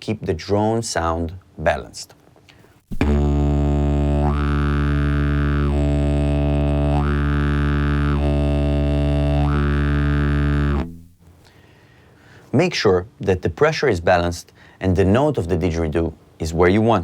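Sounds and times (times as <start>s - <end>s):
didgeridoo drone: 2.9s - 10.9s.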